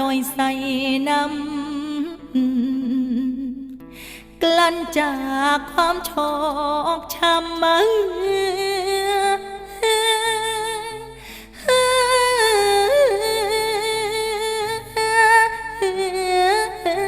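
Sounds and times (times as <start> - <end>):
person singing wavering wordless notes: 0.0 - 3.8.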